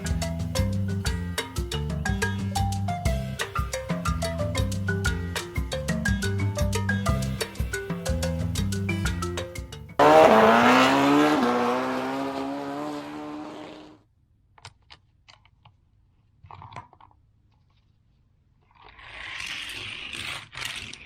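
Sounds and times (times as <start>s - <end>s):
car sound effect: 10.0s - 14.0s.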